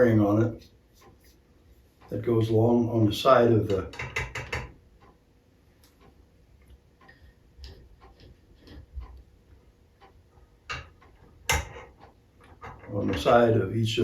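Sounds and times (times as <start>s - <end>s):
metal parts clicking and tapping: 3.6s - 4.8s, 7.0s - 9.2s, 10.0s - 13.6s.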